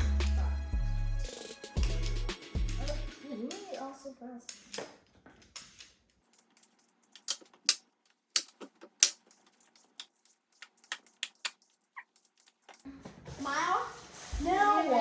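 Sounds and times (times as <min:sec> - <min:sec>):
hard objects clicking and tapping: 0:01.8 - 0:12.9.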